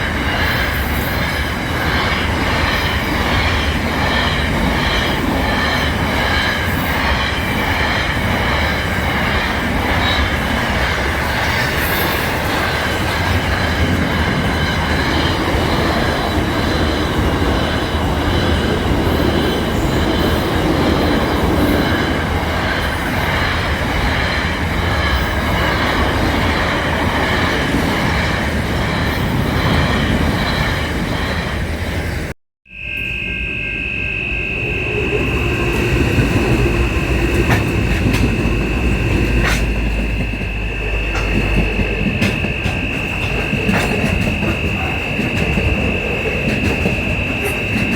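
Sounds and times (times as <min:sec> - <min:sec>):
train wheels on rails: 0:00.0 - 0:32.3, 0:34.1 - 0:47.9
wheel squeal: 0:32.9 - 0:47.9.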